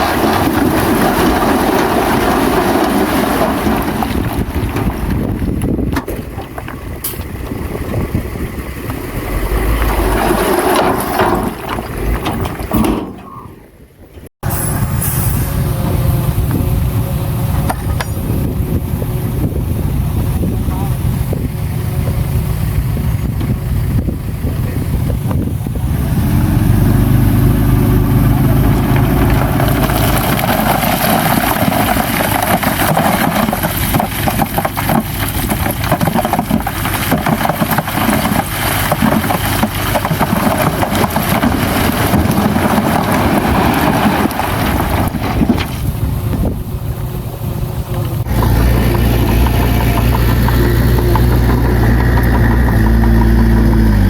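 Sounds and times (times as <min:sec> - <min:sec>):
machinery clatter: 0:00.0 - 0:13.5, 0:28.3 - 0:54.0
diesel earthmoving machinery running: 0:00.0 - 0:54.0.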